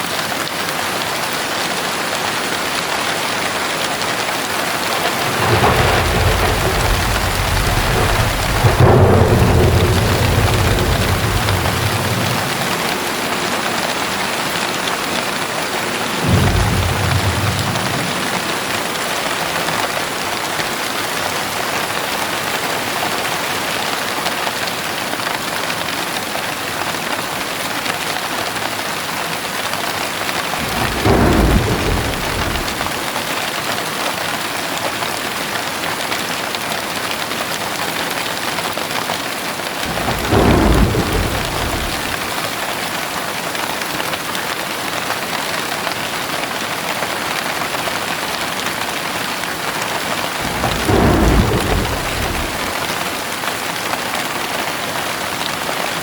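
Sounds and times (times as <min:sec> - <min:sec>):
heavy rain: 0:00.0 - 0:56.0
thunder rumbling: 0:04.6 - 0:20.7, 0:30.4 - 0:33.3, 0:39.8 - 0:42.7, 0:50.0 - 0:53.4.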